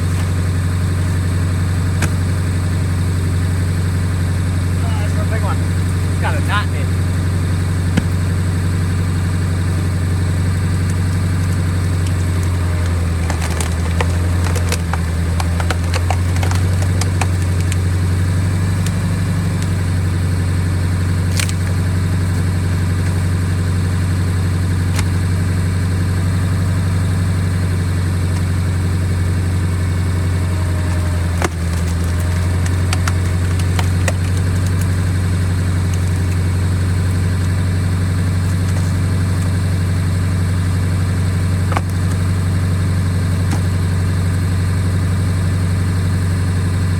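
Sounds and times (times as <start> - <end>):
truck engine drone: 0.0 - 46.9
wood splitting cracks: 0.0 - 46.9.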